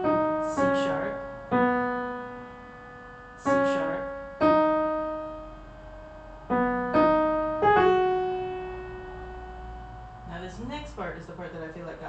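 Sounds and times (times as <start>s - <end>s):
slow piano melody: 0.0s - 10.4s.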